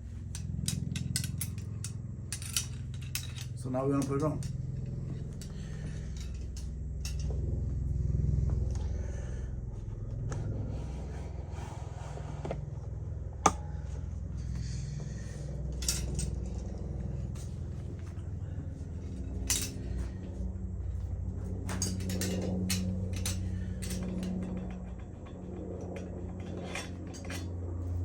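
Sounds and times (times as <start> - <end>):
metal bicycle parts clinking: 0.0 - 7.4, 15.6 - 28.0
steady low hum: 0.0 - 28.0.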